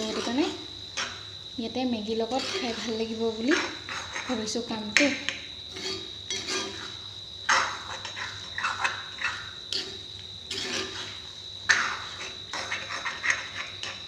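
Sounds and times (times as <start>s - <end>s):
spatula scraping a wok: 0.0s - 1.3s, 2.0s - 14.0s.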